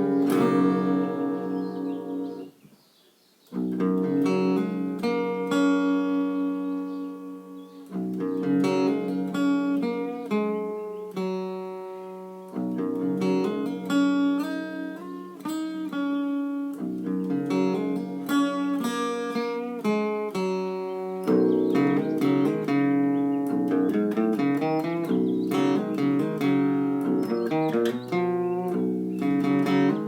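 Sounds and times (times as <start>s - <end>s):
solo guitar picked melody: 0.0s - 30.0s.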